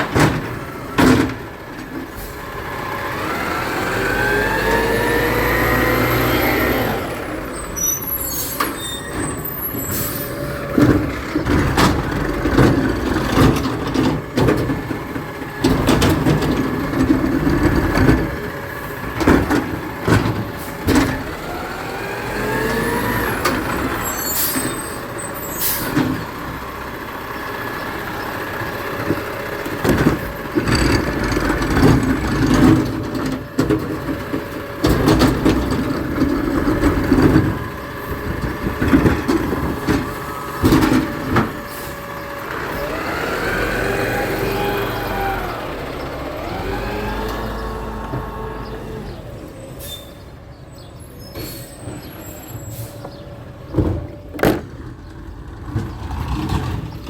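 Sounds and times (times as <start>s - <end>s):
clanks and knocks: 10.7s - 18.5s, 29.0s - 41.7s, 53.1s - 57.0s.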